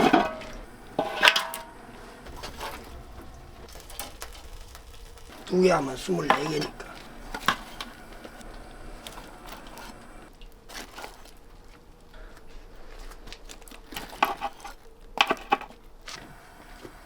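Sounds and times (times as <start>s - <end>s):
objects being handled: 0.0s - 5.5s, 6.2s - 17.0s
bursts of clicks: 0.0s - 10.3s.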